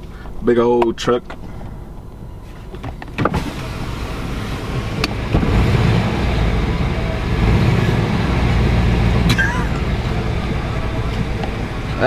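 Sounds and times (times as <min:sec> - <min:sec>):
truck engine running: 0:03.3 - 0:12.0.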